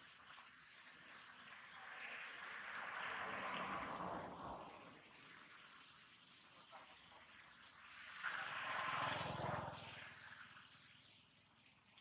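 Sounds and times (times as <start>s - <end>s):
steady rain: 0.0s - 6.1s.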